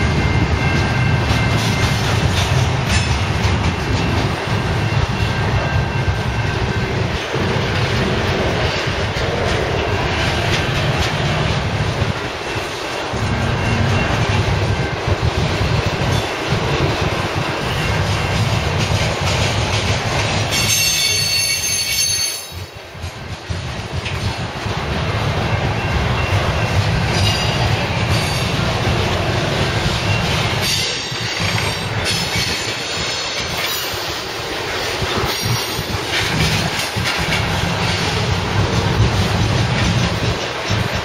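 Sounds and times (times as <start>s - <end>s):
wheels rumbling on rail: 0.0s - 41.0s
high-pitched wheel squeal: 20.5s - 22.7s.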